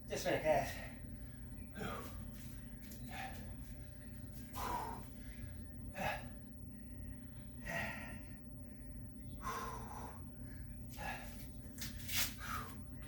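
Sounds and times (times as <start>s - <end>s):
person breathing hard: 1.8s - 2.3s, 4.5s - 6.4s, 7.6s - 8.4s, 9.4s - 12.9s.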